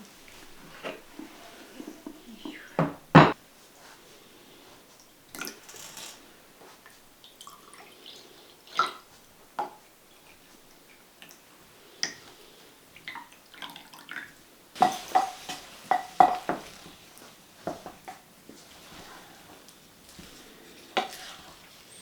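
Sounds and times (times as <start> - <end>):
kitchenware knocking and clinking: 2.0 - 3.4, 14.8 - 16.9.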